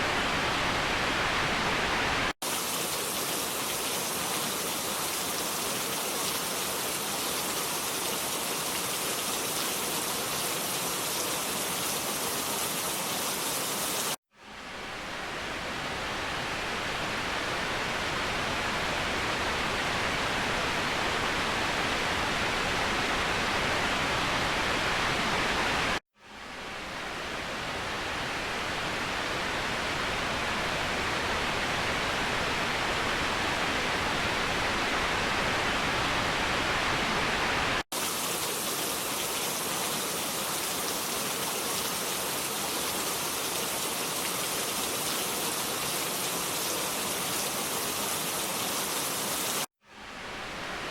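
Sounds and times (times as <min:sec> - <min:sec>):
waterfall rushing: 0:35.0 - 0:50.9.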